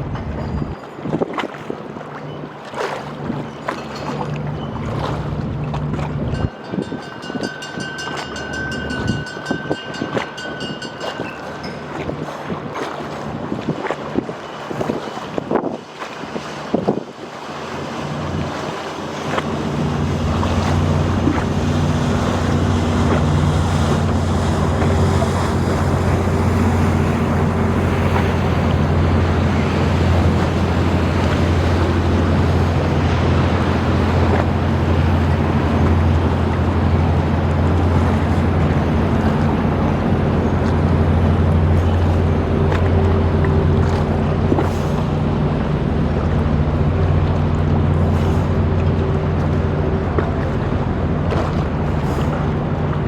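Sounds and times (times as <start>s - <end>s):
boat engine humming: 0.0s - 53.0s
rushing river water: 0.0s - 53.0s
wind buffeting microphone: 3.2s - 53.0s.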